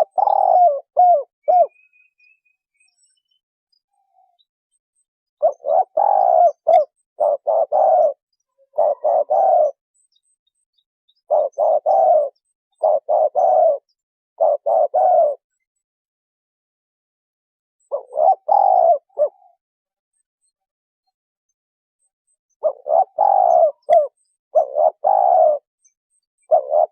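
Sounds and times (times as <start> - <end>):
dove cooing: 0.0 - 1.9, 5.4 - 9.8, 11.3 - 15.5, 17.8 - 19.6, 22.6 - 25.7, 26.4 - 26.9.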